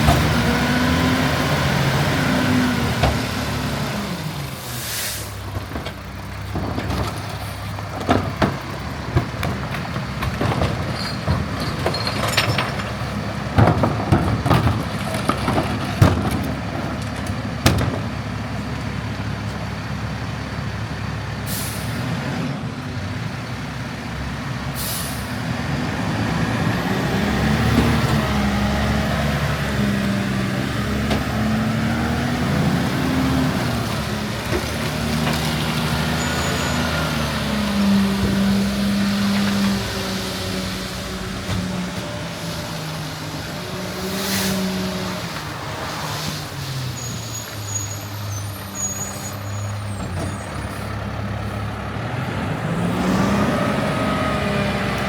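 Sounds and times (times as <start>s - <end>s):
garbage truck engine: 0.0s - 55.0s
air brake hissing: 4.6s - 5.5s, 21.4s - 22.0s, 24.8s - 25.4s
clanks and knocks: 5.5s - 18.3s.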